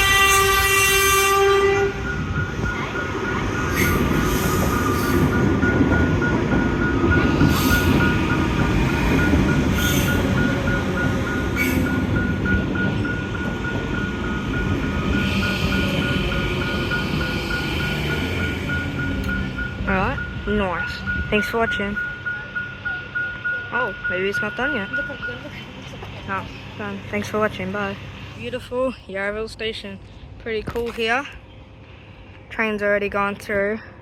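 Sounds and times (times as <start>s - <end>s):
train horn: 0.0s - 2.2s, 15.0s - 18.4s
train rumbling past: 0.0s - 34.0s
level crossing bells ringing: 2.0s - 28.0s.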